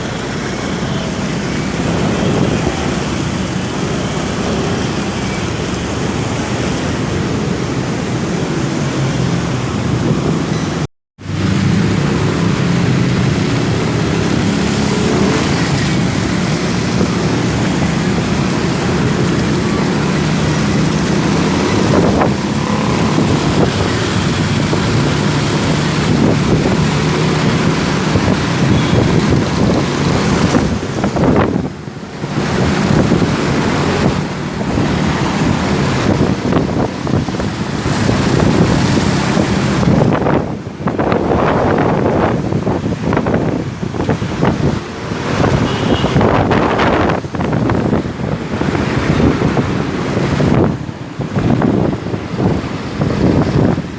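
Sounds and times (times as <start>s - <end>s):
wind buffeting microphone: 0.0s - 53.9s
motorcycle engine running: 11.3s - 40.5s.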